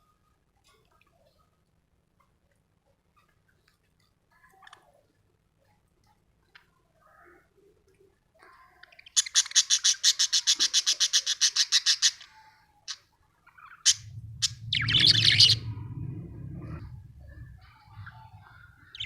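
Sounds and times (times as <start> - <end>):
low rumble: 13.9 - 19.0.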